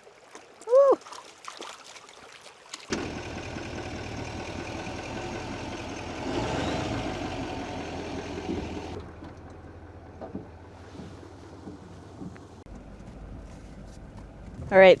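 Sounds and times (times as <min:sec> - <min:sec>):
engine humming: 0:02.9 - 0:14.7.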